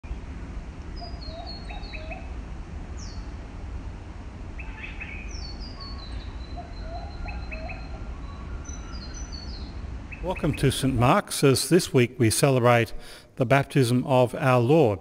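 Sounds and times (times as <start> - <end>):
low steady rumble: 0.0 - 15.0
birds chirping and whistling: 1.0 - 2.3, 4.6 - 10.9.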